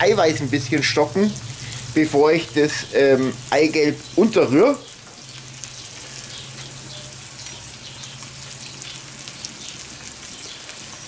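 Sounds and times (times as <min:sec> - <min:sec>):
food sizzling in skillet: 0:00.0 - 0:11.0
small crackles: 0:04.8 - 0:11.0.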